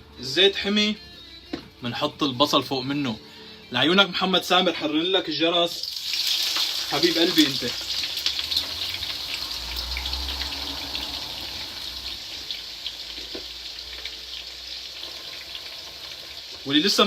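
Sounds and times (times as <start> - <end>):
onions sizzling in oil: 5.7 - 17.0.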